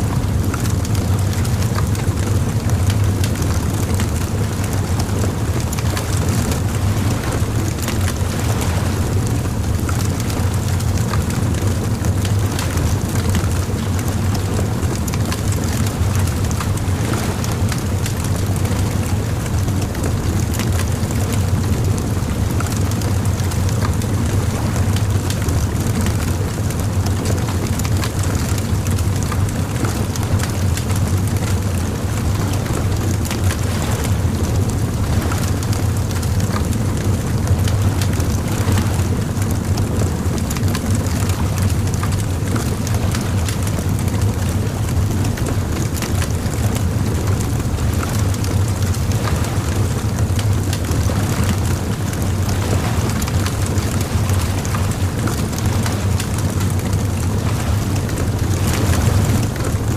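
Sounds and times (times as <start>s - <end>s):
bonfire crackling and popping: 15.0s - 59.9s.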